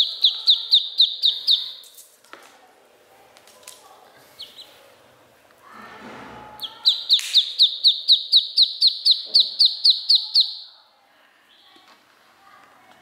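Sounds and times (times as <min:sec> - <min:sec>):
duckling peeping: 0:00.0 - 0:01.9, 0:04.3 - 0:04.8, 0:06.6 - 0:10.7.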